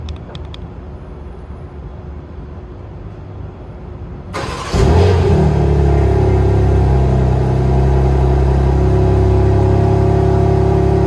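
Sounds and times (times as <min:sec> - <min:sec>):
low background rumble: 0:03.2 - 0:11.0
car engine revving loudly: 0:04.4 - 0:11.0.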